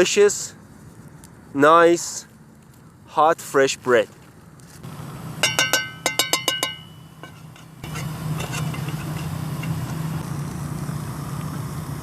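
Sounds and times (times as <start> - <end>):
metallic clinks: 5.4 - 9.9.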